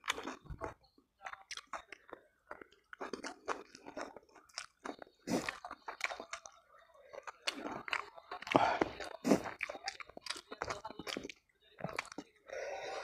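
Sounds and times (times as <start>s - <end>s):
man chewing noodles: 0.0s - 13.0s.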